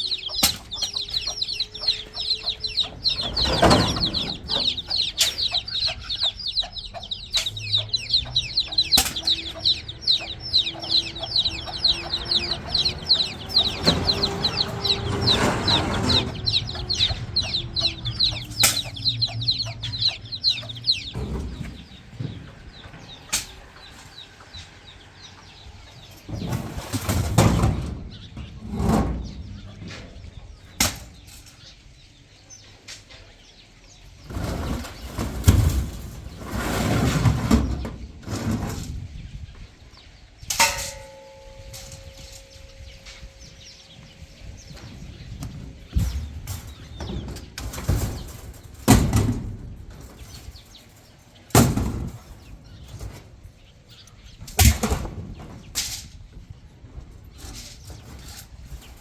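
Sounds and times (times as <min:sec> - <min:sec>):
bird chirping rapidly: 0:00.0 - 0:27.2.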